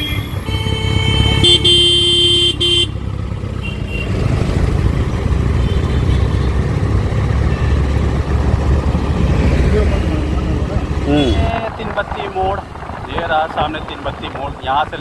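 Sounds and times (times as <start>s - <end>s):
vehicle horn honking: 0.0s - 3.0s, 11.1s - 11.6s
city traffic engine and road noise: 0.0s - 15.0s.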